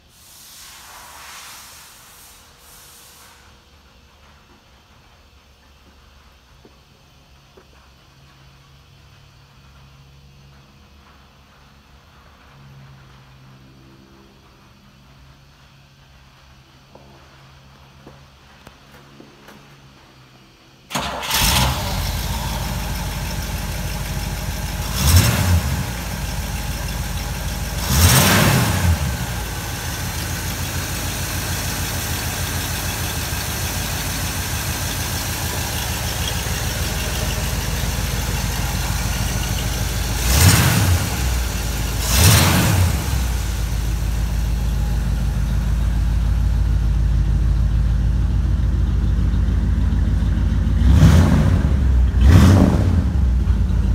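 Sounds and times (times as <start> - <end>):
car engine idling: 20.7 - 53.9
car engine starting: 20.8 - 53.9
engine throttle blips: 20.9 - 53.9.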